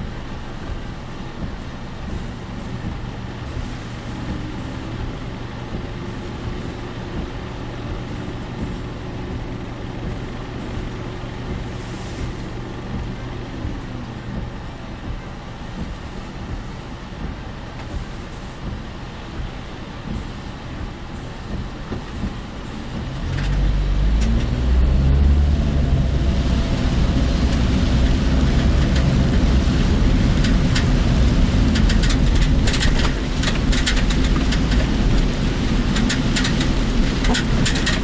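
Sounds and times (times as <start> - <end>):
low droning hum: 0.0 - 38.0
road and engine noise: 0.0 - 38.0.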